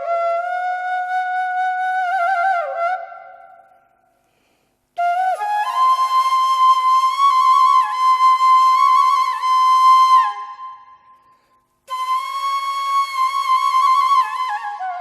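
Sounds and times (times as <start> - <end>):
solo flute melody: 0.0 - 3.9, 5.0 - 11.3, 11.9 - 15.0.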